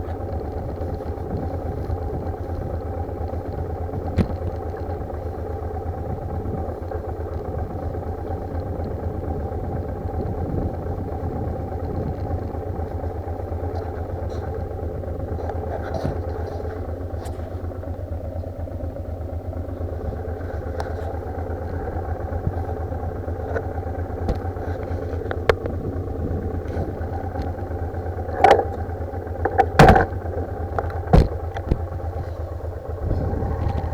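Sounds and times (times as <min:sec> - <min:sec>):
motorcycle engine running: 0:00.0 - 0:33.9
wind buffeting microphone: 0:08.9 - 0:12.9, 0:32.9 - 0:33.9
loud knocks: 0:29.5 - 0:30.2.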